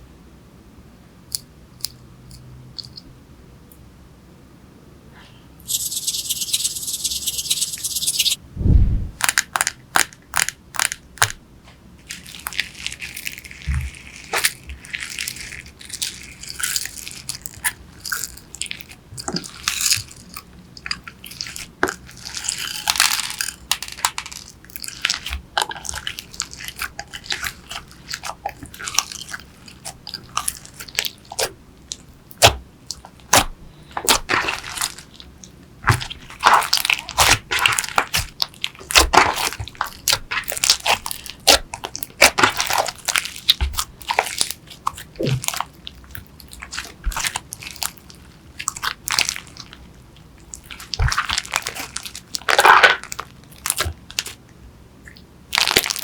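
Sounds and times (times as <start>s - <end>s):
hands squishing sticky slime: 12.1s - 54.4s.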